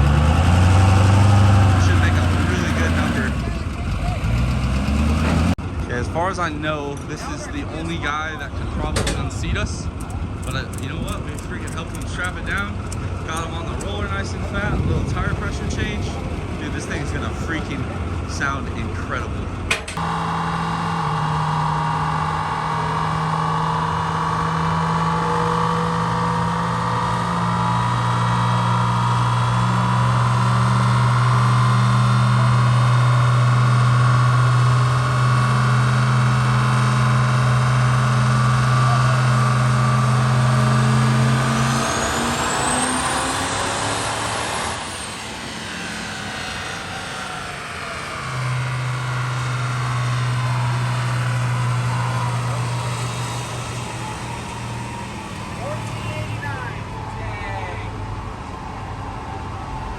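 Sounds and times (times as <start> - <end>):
diesel engine revving on dyno: 0.0 - 59.9
high turbo whistle: 37.1 - 59.9.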